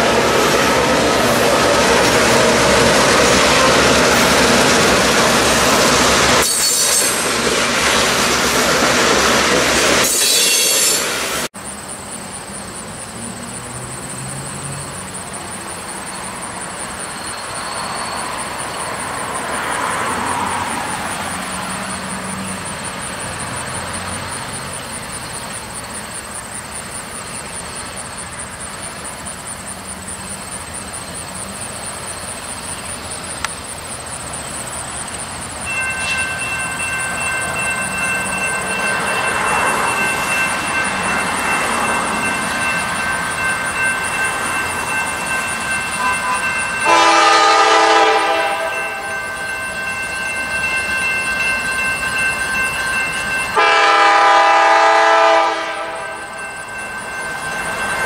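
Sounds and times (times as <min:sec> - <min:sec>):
wheel squeals: 0:00.0 - 0:11.3, 0:13.2 - 0:47.0
train wheels rumbling on rail: 0:00.0 - 0:58.0.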